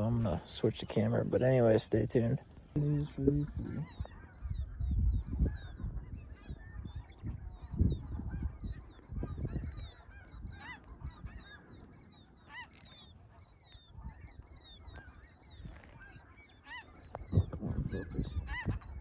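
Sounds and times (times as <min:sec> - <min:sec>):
geese honking: 0:05.4 - 0:19.0.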